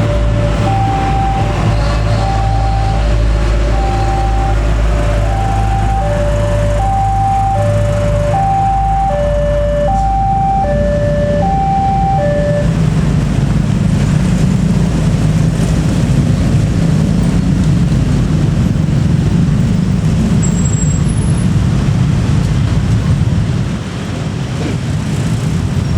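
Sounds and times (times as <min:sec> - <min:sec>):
two-tone electronic warning beeps: 0:00.0 - 0:12.7
diesel train engines running: 0:00.0 - 0:25.9.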